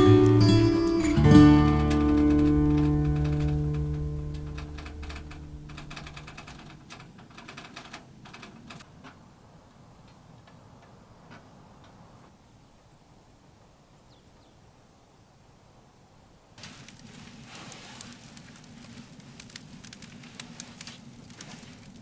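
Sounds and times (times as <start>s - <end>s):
soft guitar music: 0.0s - 6.3s
firewood crackling and popping: 0.0s - 7.0s, 16.6s - 22.0s.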